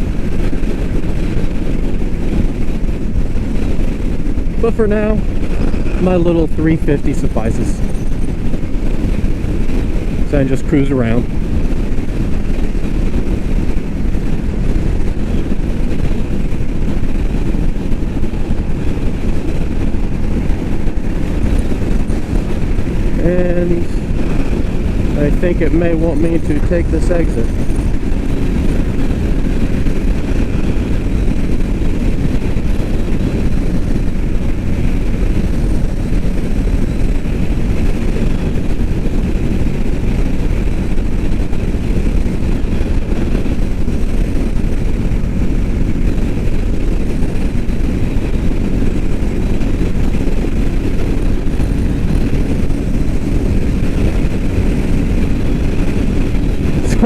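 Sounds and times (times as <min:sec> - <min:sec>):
motorcycle engine at speed: 0:00.0 - 0:57.0
road noise rushing: 0:00.0 - 0:57.0.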